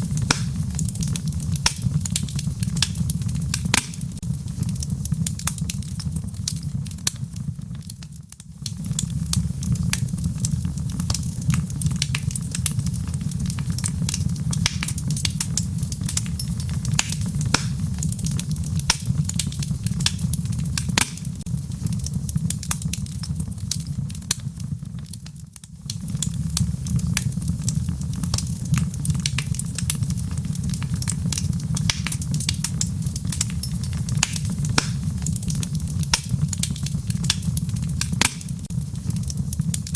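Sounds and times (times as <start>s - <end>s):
low rumble of flames: 0.0s - 39.9s
wood fire crackling: 0.0s - 39.9s
sharp wood pops: 0.3s - 0.6s, 1.6s - 1.9s, 2.8s - 4.2s, 17.0s - 17.8s, 20.9s - 21.4s, 34.2s - 35.1s, 38.2s - 38.5s.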